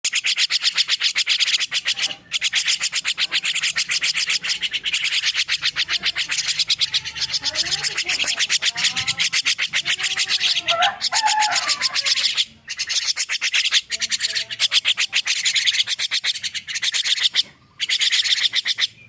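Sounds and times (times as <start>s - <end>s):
bird raspy chatter: 0.0s - 19.0s.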